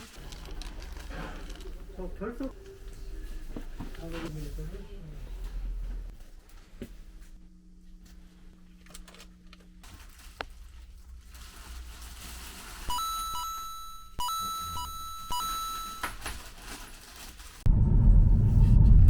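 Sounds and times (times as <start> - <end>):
electronic beeps: 12.9 - 16.2
held electronic tone: 12.9 - 16.3.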